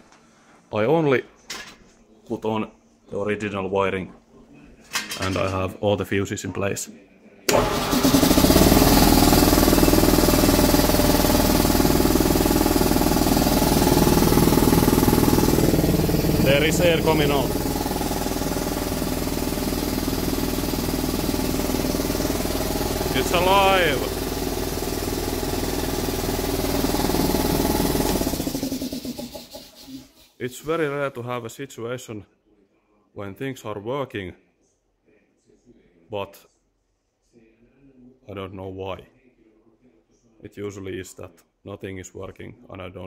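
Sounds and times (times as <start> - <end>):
electric air compressor running: 7.5 - 30.4.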